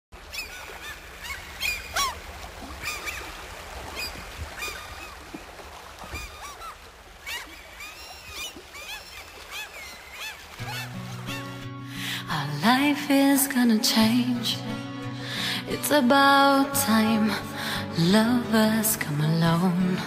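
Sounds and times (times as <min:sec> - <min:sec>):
birds singing: 0:00.2 - 0:02.2, 0:06.1 - 0:11.7.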